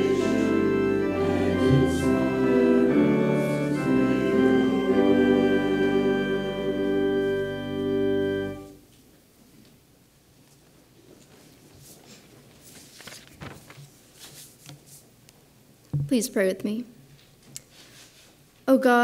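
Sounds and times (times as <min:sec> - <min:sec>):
church organ chords: 0:00.0 - 0:08.8.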